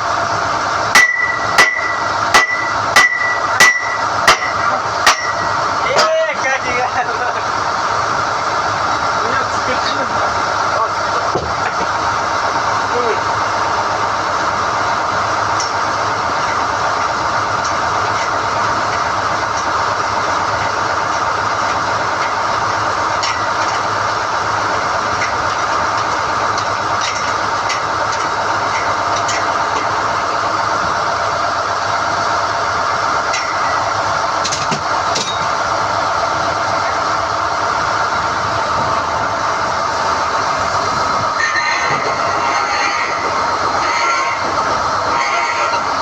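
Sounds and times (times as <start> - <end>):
drilling rig running: 0.0 - 46.0.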